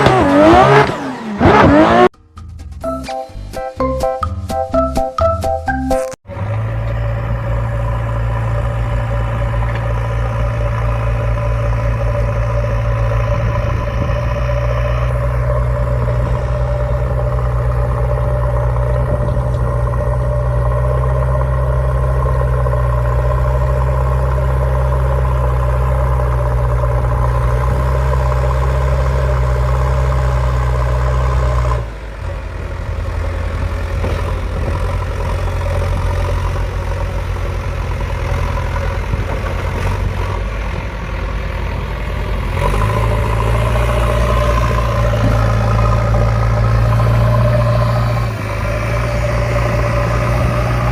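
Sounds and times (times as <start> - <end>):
engine idling with low rumble: 6.3 - 50.9.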